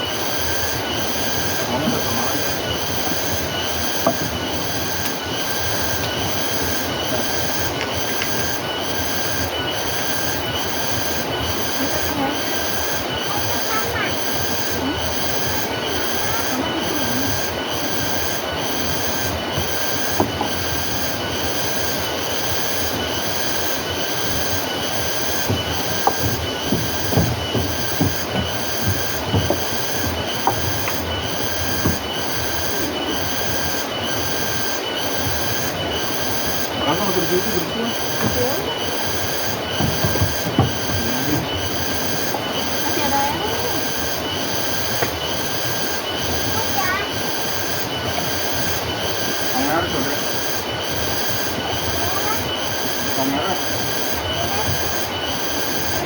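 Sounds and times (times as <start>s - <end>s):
insects chirring: 0.0s - 56.0s
soft low knocks: 24.7s - 32.6s, 36.8s - 43.3s.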